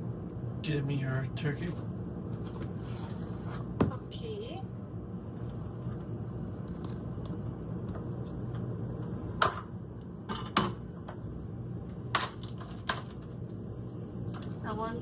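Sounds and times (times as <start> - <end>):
dishes and utensils clinking: 10.3 - 10.8.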